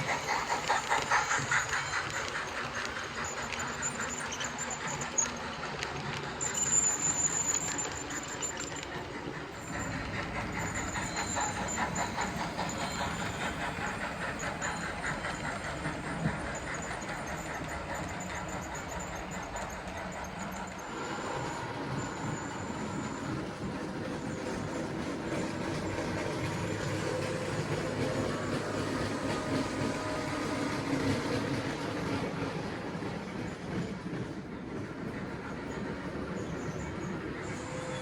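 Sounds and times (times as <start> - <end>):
high squeak from wheels: 0.0 - 32.8, 35.7 - 38.0
model train wheels clicking: 0.0 - 38.0.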